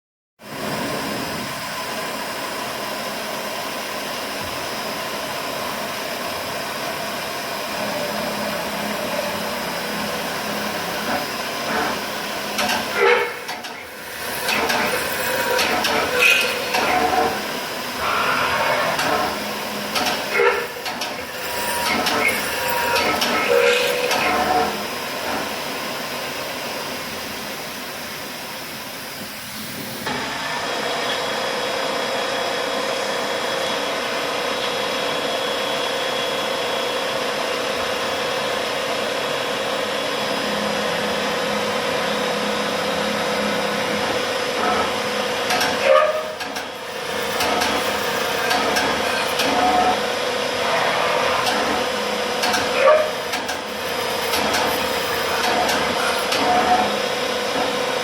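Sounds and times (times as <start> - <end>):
steady machine whine: 0.4 - 58.0
milling machine hiss: 0.6 - 37.0, 37.6 - 58.0.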